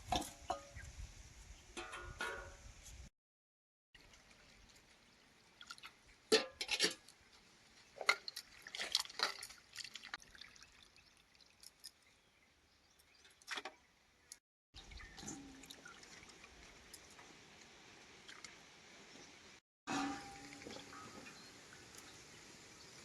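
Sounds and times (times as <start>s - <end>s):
water splashing and pouring: 4.0s - 12.2s, 14.8s - 23.0s.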